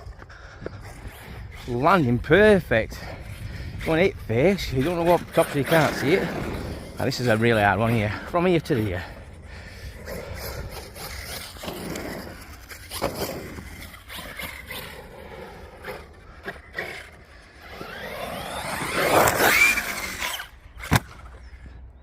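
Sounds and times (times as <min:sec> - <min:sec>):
tyres scrabbling on dirt: 0:00.0 - 0:21.1
electric motor whining: 0:00.6 - 0:21.6
toy truck landing thud: 0:20.8 - 0:21.4.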